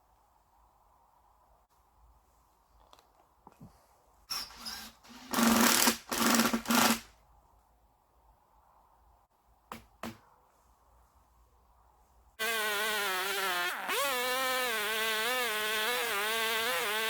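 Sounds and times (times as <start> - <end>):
chainsaw engine bursts: 12.4 - 17.0.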